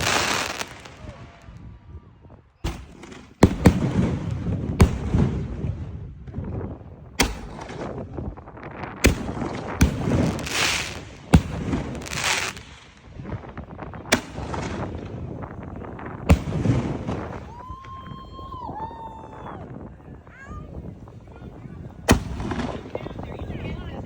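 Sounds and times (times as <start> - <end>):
crackling hiss of firework bursts: 0.0 - 1.2, 9.1 - 15.4
firework bangs: 0.0 - 1.8, 2.6 - 18.5, 21.9 - 24.0.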